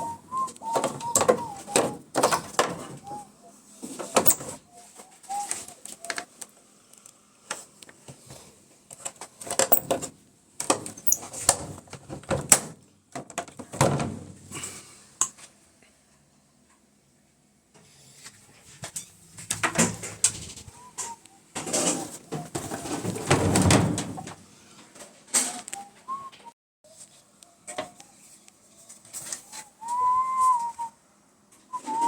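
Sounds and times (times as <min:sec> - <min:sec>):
parts knocking and clattering: 0:04.0 - 0:04.6, 0:09.4 - 0:14.2, 0:21.6 - 0:24.4.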